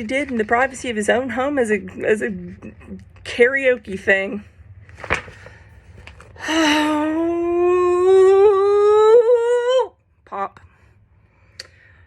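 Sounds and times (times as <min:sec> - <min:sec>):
woman humming: 0:06.5 - 0:09.9.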